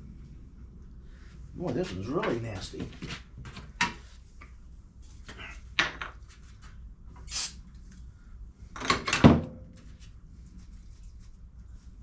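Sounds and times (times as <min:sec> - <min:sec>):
short hiss: 0:07.2 - 0:07.6.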